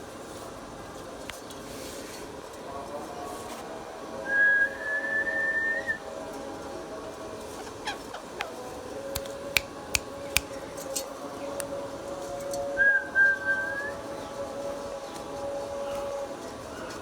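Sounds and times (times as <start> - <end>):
sharp clicks: 9.2 - 10.5.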